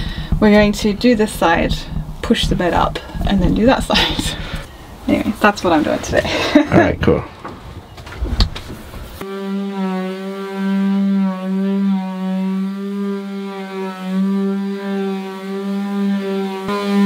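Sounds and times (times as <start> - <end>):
electric sander humming: 9.2 - 17.0.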